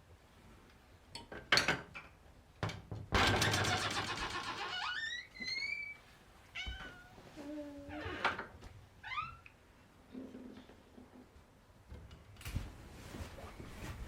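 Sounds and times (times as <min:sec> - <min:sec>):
cat meowing: 0:06.5 - 0:07.2.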